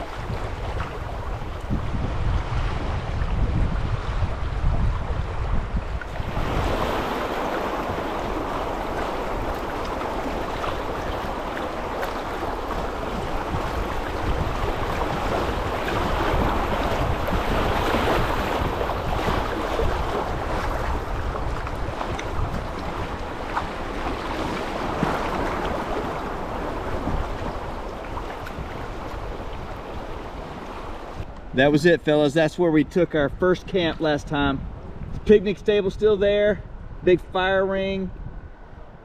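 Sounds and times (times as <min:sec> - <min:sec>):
river water rushing: 0:00.0 - 0:01.8, 0:06.0 - 0:31.2
wind buffeting microphone: 0:00.0 - 0:39.0.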